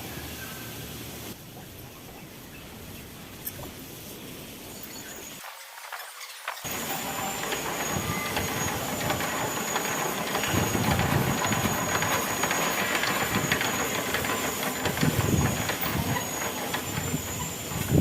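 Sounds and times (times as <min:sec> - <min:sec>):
diesel engine clattering: 0:06.7 - 0:18.0.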